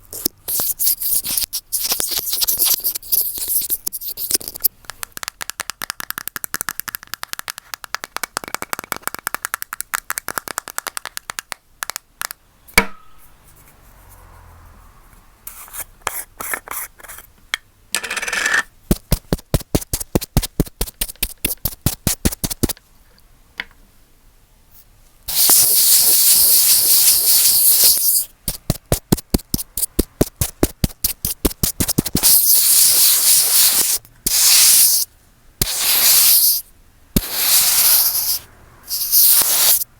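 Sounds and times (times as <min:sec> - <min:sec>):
hissy rubbing on microphone: 0:00.0 - 0:04.7, 0:18.9 - 0:22.8, 0:25.3 - 0:36.6, 0:37.2 - 0:39.9
taps and clicks on microphone: 0:04.8 - 0:12.4.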